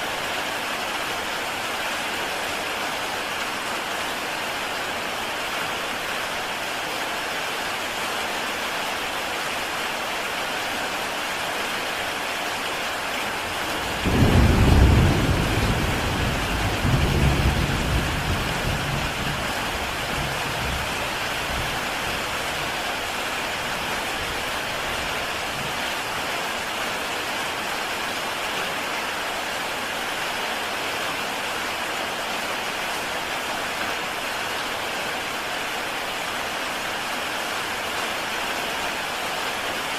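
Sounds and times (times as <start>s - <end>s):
heavy rain on a tile roof: 0.0s - 39.9s
thunder rumbling: 13.8s - 20.8s.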